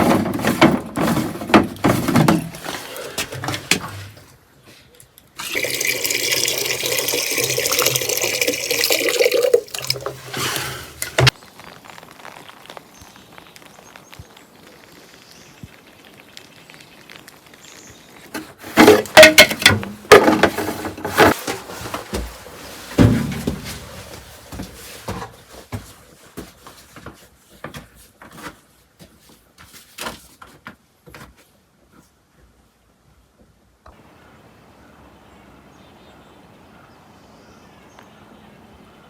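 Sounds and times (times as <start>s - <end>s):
heavy knocks and scrapes: 0.0s - 4.2s, 10.0s - 11.3s, 18.6s - 25.4s.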